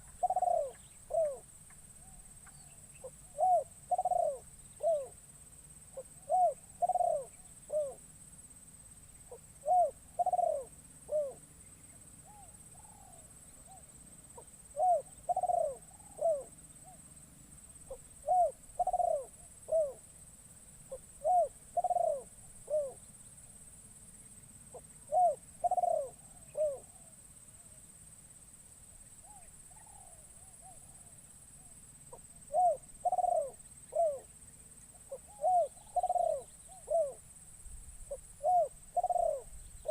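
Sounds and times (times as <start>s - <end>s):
dove cooing: 0.0s - 5.2s, 5.9s - 8.0s, 9.3s - 11.4s, 12.2s - 17.0s, 17.8s - 20.0s, 20.9s - 23.0s, 24.7s - 27.7s, 32.1s - 34.3s, 35.0s - 37.3s, 38.1s - 39.9s.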